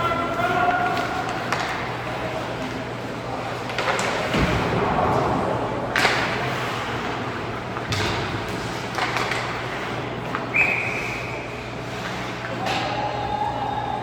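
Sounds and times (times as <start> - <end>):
hockey sticks and puck clacking: 0.0 - 13.1
crowd and rink noise: 0.0 - 14.0
short high whistle: 10.5 - 11.4.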